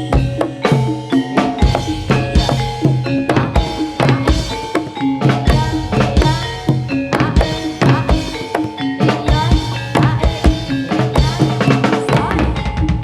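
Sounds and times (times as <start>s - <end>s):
sustained melodic notes: 0.0s - 12.1s
fast hand-drum strokes: 0.0s - 13.0s
bass line: 1.6s - 3.5s.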